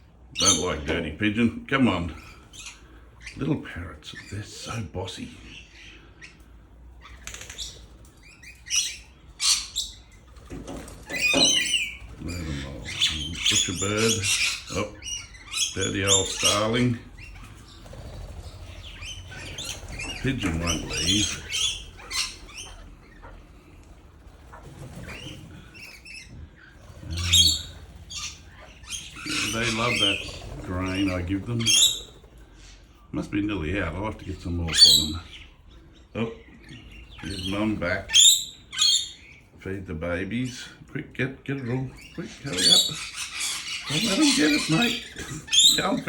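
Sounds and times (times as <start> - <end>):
parrots chirping: 0.0 - 46.0
parrot harsh screeches: 42.5 - 46.0.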